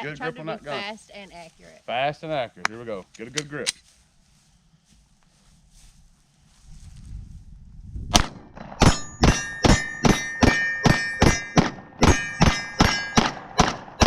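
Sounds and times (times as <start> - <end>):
metallic ringing: 8.8 - 13.4
rapid pistol fire: 10.9 - 14.0.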